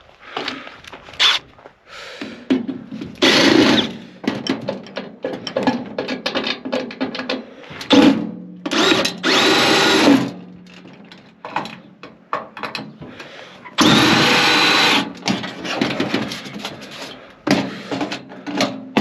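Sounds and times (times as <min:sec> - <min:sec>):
cordless drill motor: 0:01.2 - 0:01.4, 0:03.2 - 0:04.0, 0:08.7 - 0:10.3, 0:13.8 - 0:15.2
metal and screws clattering: 0:02.5 - 0:13.1, 0:13.7 - 0:19.0.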